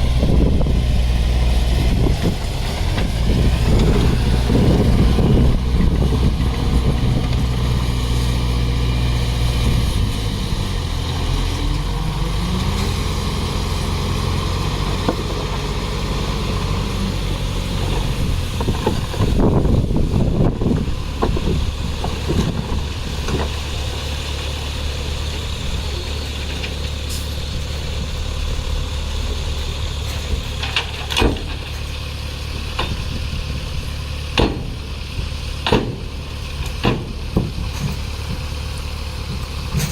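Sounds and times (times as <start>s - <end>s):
heavy diesel engine revving: 0.0s - 39.9s
knocks and clanks: 30.1s - 31.9s, 34.4s - 34.9s, 35.6s - 38.4s.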